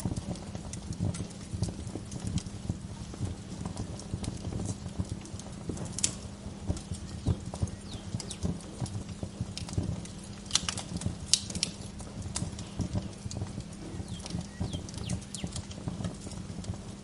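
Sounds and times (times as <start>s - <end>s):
low fire rumble: 0.0s - 17.0s
wood fire crackling and popping: 0.0s - 17.0s
falling bird chirps: 7.1s - 8.5s, 13.8s - 15.6s.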